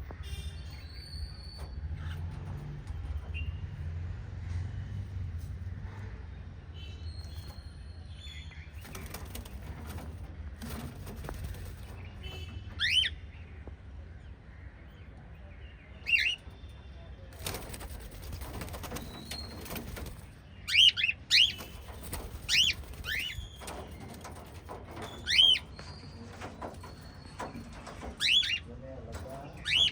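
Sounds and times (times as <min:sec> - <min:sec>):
cockatiels chirping: 0:12.7 - 0:13.2, 0:20.6 - 0:28.6, 0:29.6 - 0:29.9.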